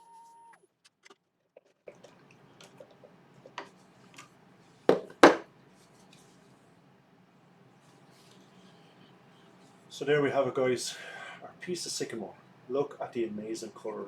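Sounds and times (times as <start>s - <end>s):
loud sharp knocks: 4.9s - 5.5s.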